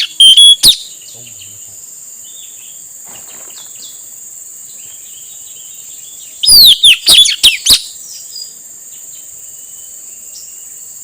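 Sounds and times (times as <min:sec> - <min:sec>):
parrot calling: 0:00.0 - 0:00.9, 0:06.4 - 0:07.9
high insect drone: 0:00.0 - 0:11.0.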